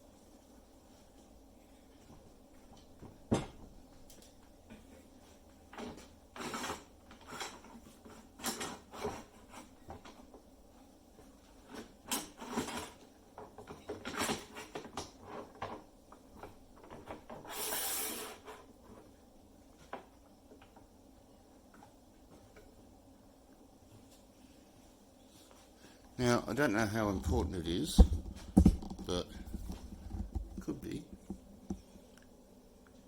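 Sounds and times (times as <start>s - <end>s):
metal scraping slide: 17.5s - 18.6s.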